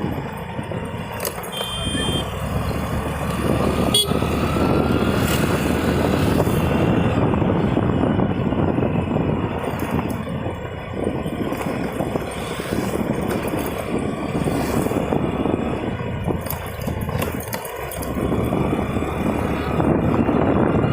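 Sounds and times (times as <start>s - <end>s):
road noise: 0.0s - 20.9s
scooter engine running: 0.0s - 20.9s
vehicle horn toot: 1.4s - 2.4s, 3.8s - 4.3s
wind rumble on microphone: 2.2s - 20.9s.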